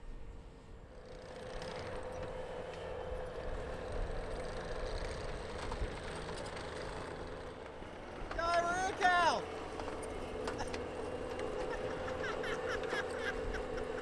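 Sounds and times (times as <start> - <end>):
engine running steadily: 9.8 - 14.0.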